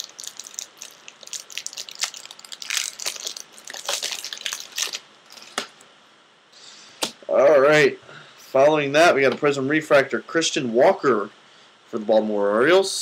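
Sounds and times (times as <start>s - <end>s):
foil wrappers crinkling: 0.0s - 5.8s.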